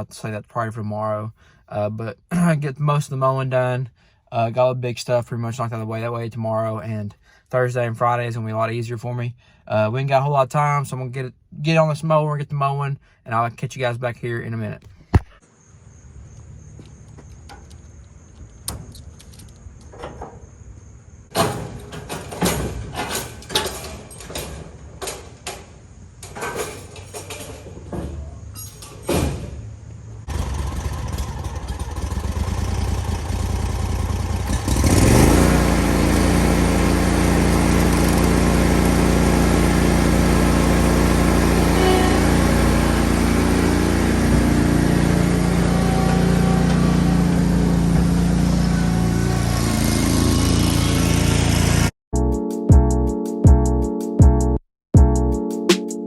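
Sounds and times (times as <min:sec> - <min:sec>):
lawn mower engine: 0:30.2 - 0:51.9.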